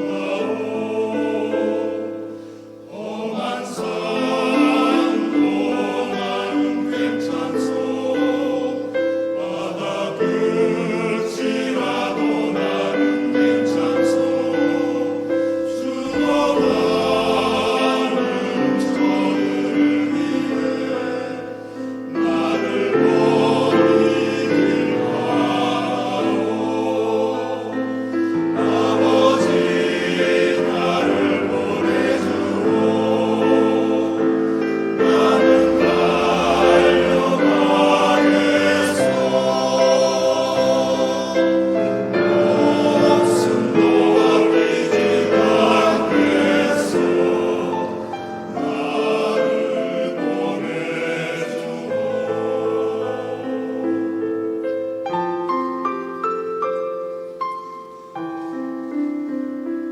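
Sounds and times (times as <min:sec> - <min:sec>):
church choir singing: 0:00.0 - 0:59.9.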